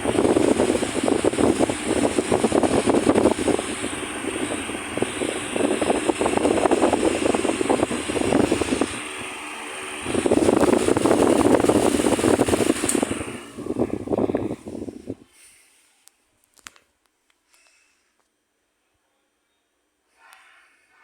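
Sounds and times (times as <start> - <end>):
fan airflow buffeting microphone: 0.0 - 15.9.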